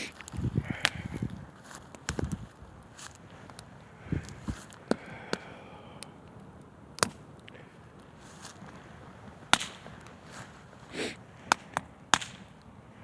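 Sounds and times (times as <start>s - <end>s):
sharp pops of fire: 0.0s - 12.8s
campfire crackling: 0.0s - 13.0s.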